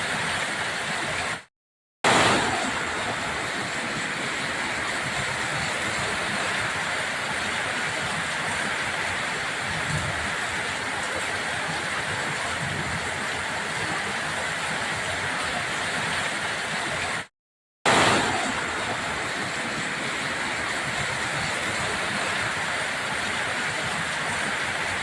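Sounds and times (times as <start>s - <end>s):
rushing floodwater and rain: 0.0s - 17.3s, 17.9s - 25.0s.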